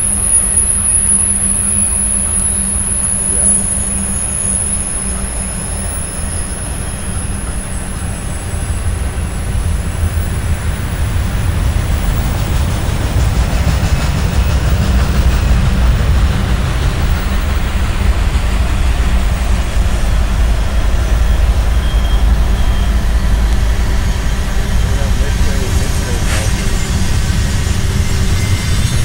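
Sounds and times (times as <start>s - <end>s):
high-pitched wheel squeal: 0.0s - 9.5s, 18.8s - 24.2s, 24.8s - 29.0s
train wheels rumbling on rail: 0.0s - 29.0s.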